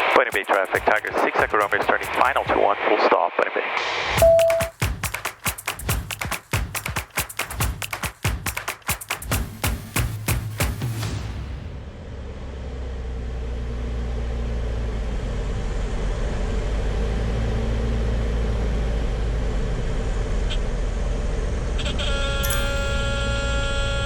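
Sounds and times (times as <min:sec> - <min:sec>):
propeller plane engine drone: 0:11.9 - 0:24.0.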